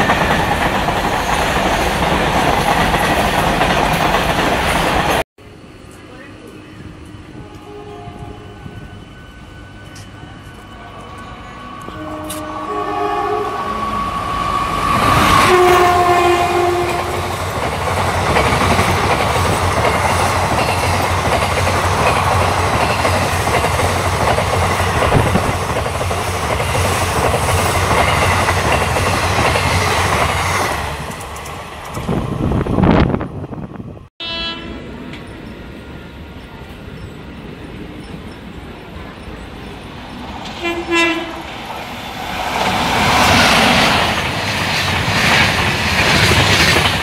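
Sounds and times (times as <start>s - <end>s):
train coaches clickety-clack: 0.0s - 5.2s, 9.8s - 12.8s, 14.4s - 33.2s, 35.0s - 47.0s
train rushing past: 0.0s - 47.0s
train horn: 7.3s - 9.8s, 11.5s - 17.3s, 34.2s - 35.0s, 40.6s - 41.5s.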